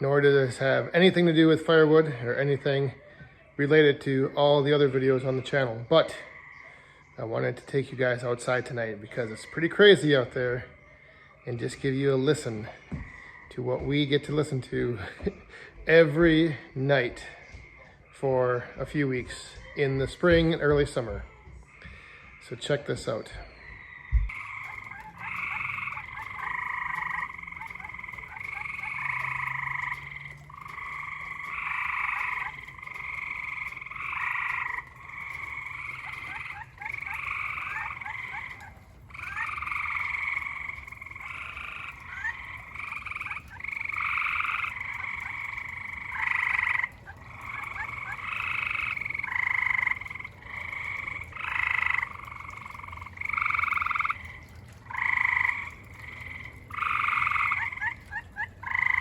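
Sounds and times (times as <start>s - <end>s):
frogs trilling: 0.0s - 59.0s.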